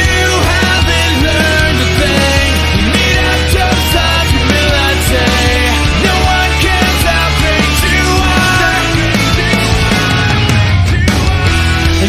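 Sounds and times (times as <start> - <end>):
distorted hard rock music: 0.0 - 12.0.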